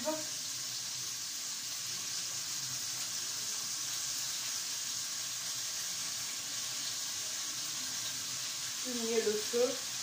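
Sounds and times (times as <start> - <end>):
food sizzling in a saucepan: 0.0 - 10.0.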